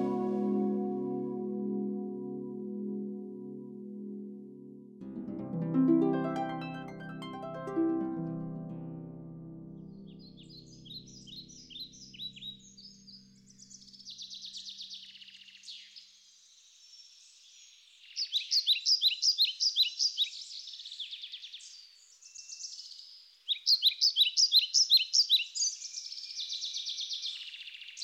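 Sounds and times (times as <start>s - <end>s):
songbirds chirping and trilling: 9.9s - 28.0s.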